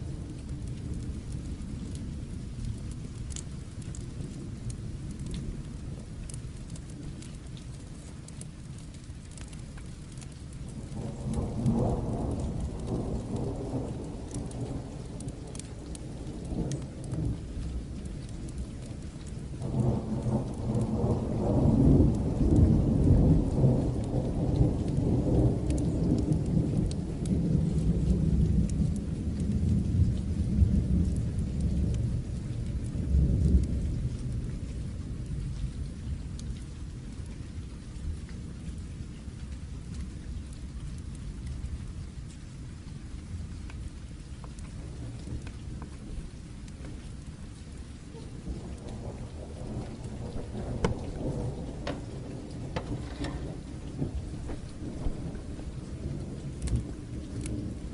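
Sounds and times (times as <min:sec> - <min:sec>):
steady rain falling: 0:00.0 - 0:57.9
thunder rolling: 0:10.8 - 0:17.6, 0:44.6 - 0:57.9.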